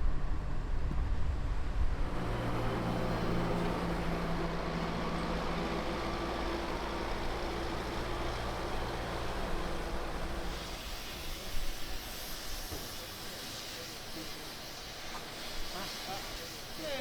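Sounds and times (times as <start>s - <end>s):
machinery drone with low hum: 0.0s - 12.8s.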